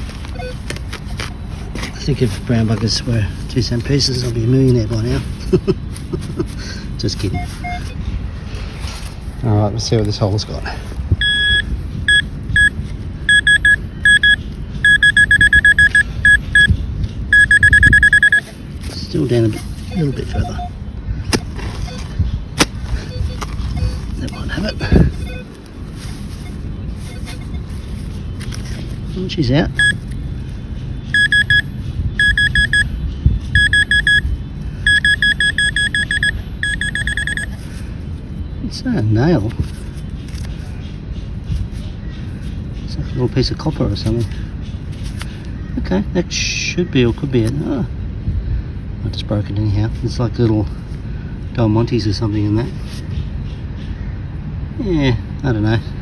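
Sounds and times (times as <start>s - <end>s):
metal detector beeping: 0.0s - 5.2s, 7.0s - 8.0s, 11.2s - 30.2s, 31.0s - 37.7s.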